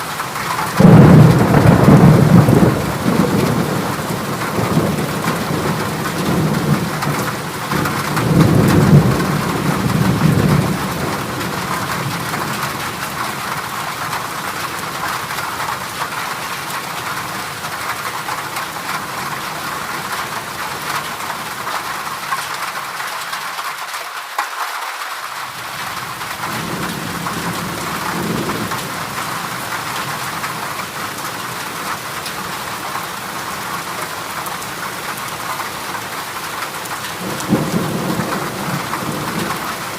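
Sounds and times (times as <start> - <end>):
heavy rain on a metal roof: 0.0 - 39.9
thunder rumbling: 0.5 - 13.4, 37.2 - 39.9.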